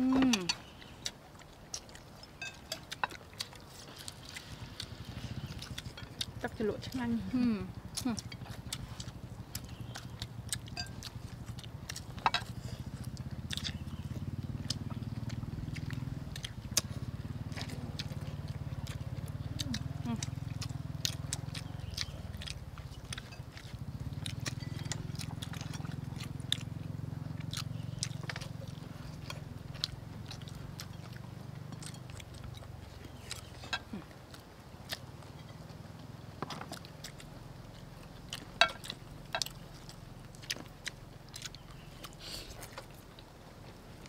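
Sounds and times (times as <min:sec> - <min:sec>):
steady low hum: 0:00.0 - 0:44.0
wet chewing and lip smacks: 0:00.0 - 0:44.0
sharp mouth clicks: 0:36.7 - 0:43.3.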